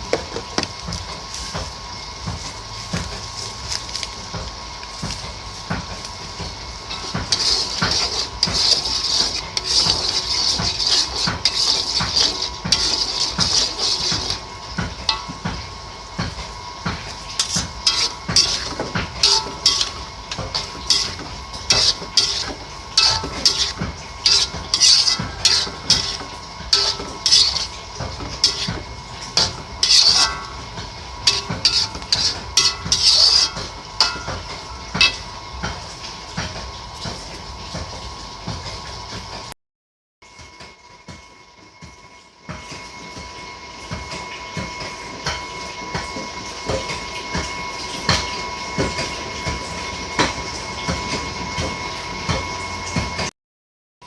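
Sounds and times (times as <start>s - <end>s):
utensil scraping in a metal pan: 6.8s - 15.4s, 17.0s - 35.4s.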